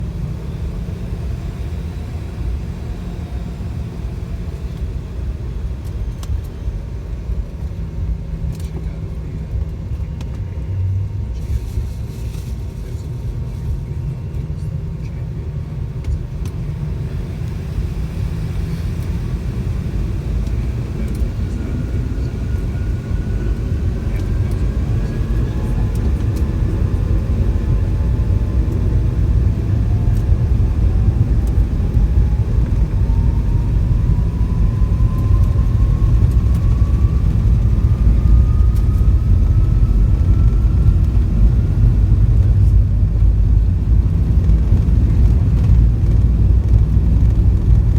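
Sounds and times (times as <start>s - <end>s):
jet engine rumble: 0.0s - 47.9s
turbine whine rising in pitch: 16.7s - 47.9s.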